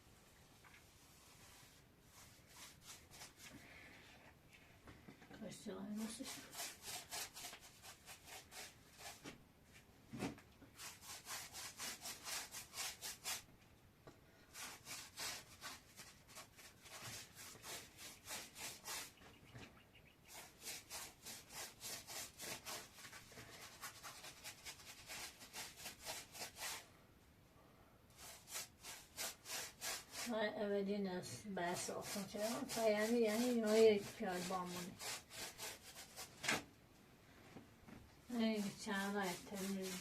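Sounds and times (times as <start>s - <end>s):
rhythmic scraping strokes: 31.7s - 36.2s, 38.6s - 40.0s.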